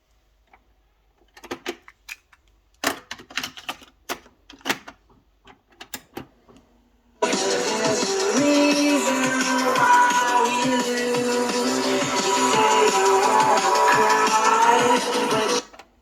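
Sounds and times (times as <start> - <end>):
music from boombox: 7.2 - 15.7.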